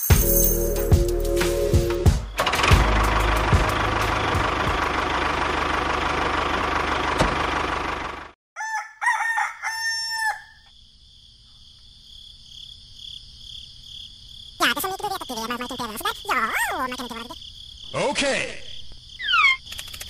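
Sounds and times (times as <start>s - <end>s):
tractor engine running: 2.3s - 8.4s
rooster crowing: 8.6s - 10.7s
crickets chirring: 9.7s - 20.0s.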